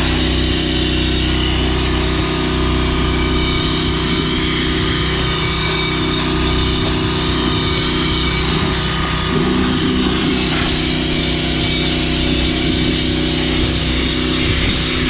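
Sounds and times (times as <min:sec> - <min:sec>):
pressure washer engine drone: 0:00.0 - 0:15.0
water spray hiss: 0:03.5 - 0:14.3.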